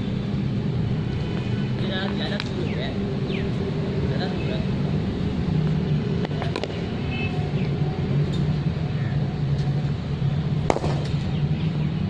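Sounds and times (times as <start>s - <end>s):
low engine drone: 0.0s - 12.0s
loud crack: 10.7s - 11.3s.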